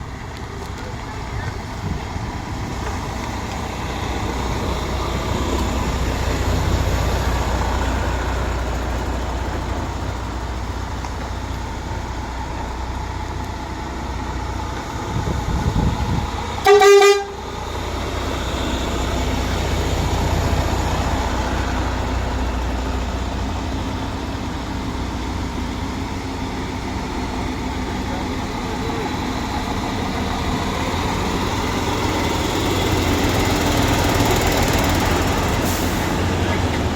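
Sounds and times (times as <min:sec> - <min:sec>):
truck engines rumbling: 0:00.0 - 0:36.9
loud horn blast: 0:16.6 - 0:17.4.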